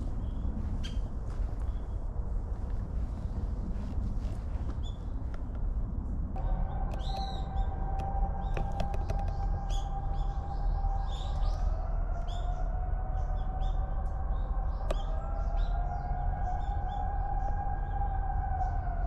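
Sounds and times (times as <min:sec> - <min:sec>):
low rumble: 0:00.0 - 0:19.0
wavering siren-like tone: 0:06.4 - 0:19.0
sharp clicks: 0:06.9 - 0:07.4, 0:08.0 - 0:09.5
small birds chirping: 0:13.2 - 0:16.0.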